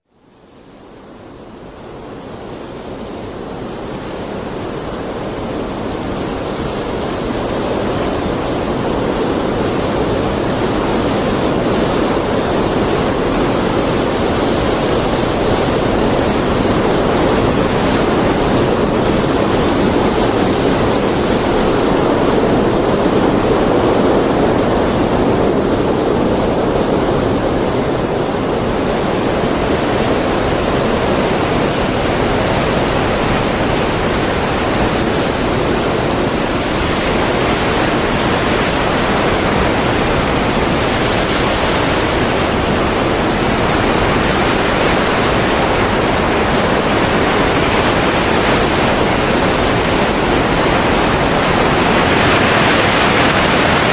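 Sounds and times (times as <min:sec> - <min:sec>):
heavy rain falling: 0:03.4 - 0:53.9.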